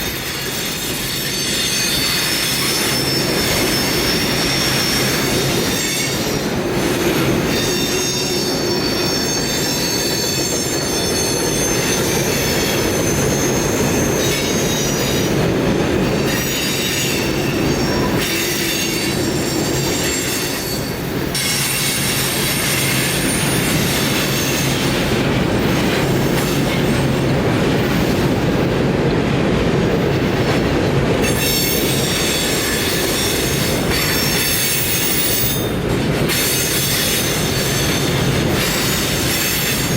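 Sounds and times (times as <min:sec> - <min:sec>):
train wheels squealing: 0:00.0 - 0:27.3, 0:31.2 - 0:39.9
rail cars rumbling: 0:00.0 - 0:39.9.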